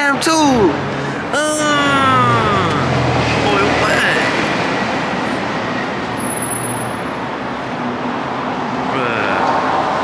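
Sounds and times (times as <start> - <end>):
faint low engine hum: 0.0 - 6.2
car engines and traffic: 0.0 - 10.0.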